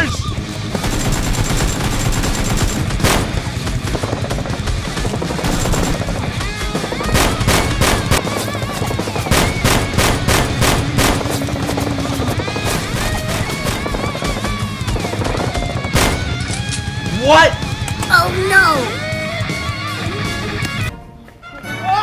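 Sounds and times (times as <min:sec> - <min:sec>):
action background music: 0:00.0 - 0:21.4
machine gun fire: 0:00.5 - 0:17.8
single gunshots: 0:00.8 - 0:04.0, 0:07.0 - 0:14.0, 0:16.0 - 0:17.6.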